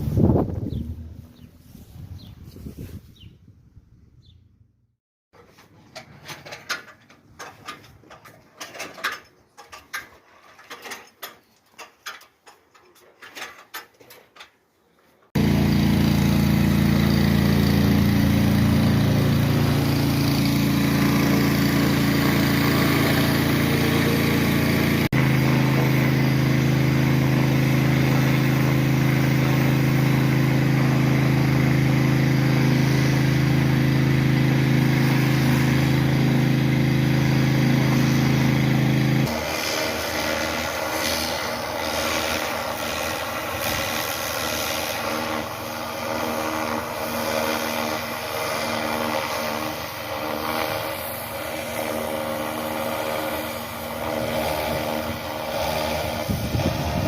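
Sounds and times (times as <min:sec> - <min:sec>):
machine motor running: 0:15.4 - 0:57.0.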